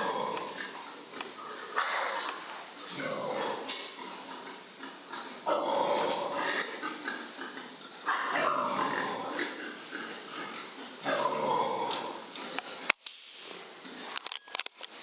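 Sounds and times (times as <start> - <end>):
sharp clicks: 14.1 - 15.0.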